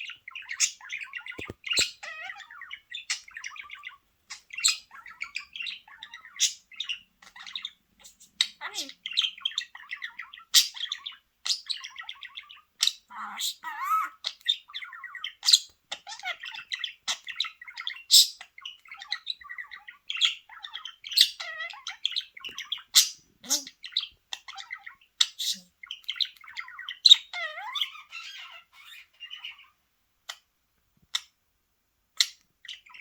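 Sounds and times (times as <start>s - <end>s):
budgerigar warbling and chirping: 0.0s - 30.5s, 32.2s - 33.0s.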